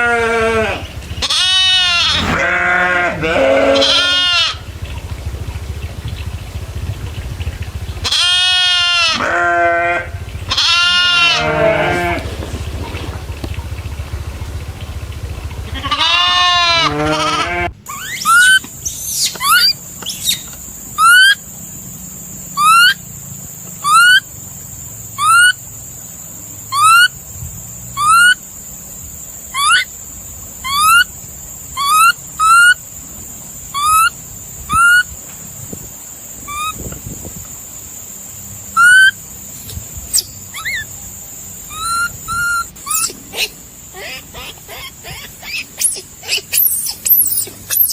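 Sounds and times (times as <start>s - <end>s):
animal giving sharp upswept calls: 0.0s - 4.7s, 8.0s - 12.3s, 15.6s - 21.5s, 22.5s - 23.1s, 23.8s - 24.4s, 25.1s - 25.6s, 26.6s - 27.3s, 27.9s - 28.5s, 29.4s - 30.0s, 30.6s - 32.9s, 33.6s - 35.2s, 36.4s - 36.8s, 38.6s - 47.9s
long falling animal call: 0.0s - 5.4s, 8.0s - 14.5s, 15.2s - 21.5s, 22.5s - 23.1s, 23.8s - 24.4s, 25.1s - 25.6s, 26.6s - 27.2s, 28.0s - 28.4s, 29.5s - 30.0s, 30.6s - 32.8s, 33.7s - 35.2s, 36.4s - 36.8s, 38.7s - 39.2s, 40.5s - 41.0s, 41.6s - 47.9s
steady high hiss: 17.8s - 47.9s.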